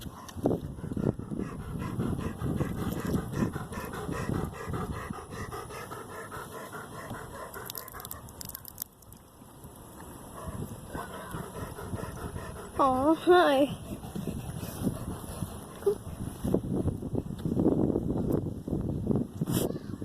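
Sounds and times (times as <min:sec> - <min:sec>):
dog panting: 0:00.0 - 0:08.3, 0:10.3 - 0:16.4.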